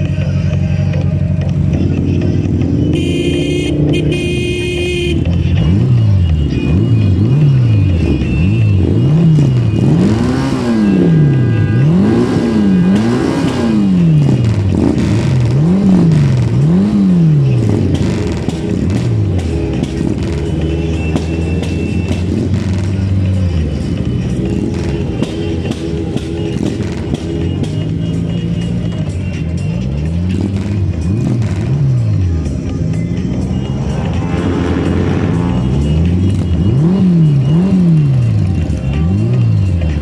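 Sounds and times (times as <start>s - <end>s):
motorcycle idling: 0.0s - 8.8s, 16.8s - 40.0s
motorcycle engines revving: 0.0s - 40.0s.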